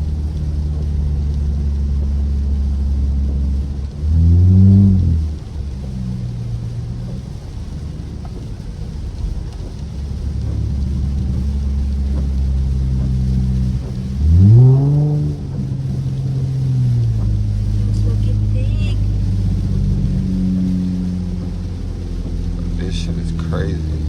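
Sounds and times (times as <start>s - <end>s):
car exhaust droning: 0.0s - 24.0s.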